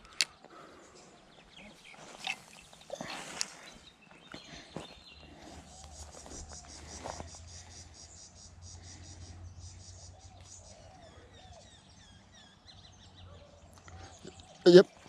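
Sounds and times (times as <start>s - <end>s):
insect chirping: 6.0s - 10.3s.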